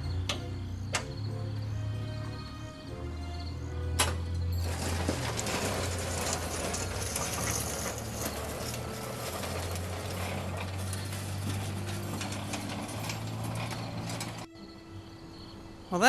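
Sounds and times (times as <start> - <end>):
gravel scraping and crunching: 4.6 - 14.5.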